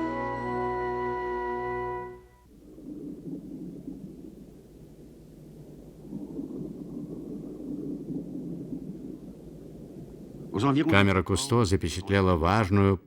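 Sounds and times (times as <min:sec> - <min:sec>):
low rumbling water: 0:00.0 - 0:12.8.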